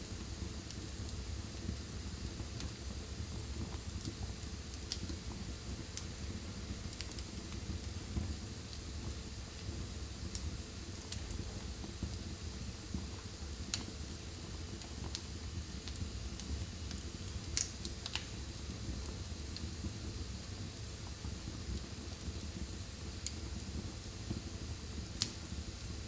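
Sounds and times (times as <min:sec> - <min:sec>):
fire crackling: 0:00.0 - 0:26.0
sharp pops from fire: 0:06.8 - 0:08.8, 0:13.6 - 0:14.0, 0:14.8 - 0:23.5, 0:24.3 - 0:25.6.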